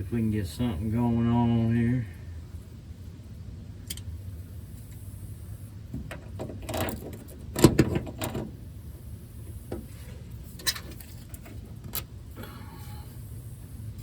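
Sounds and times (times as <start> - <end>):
vise grips clanking on metal: 6.0 - 8.5.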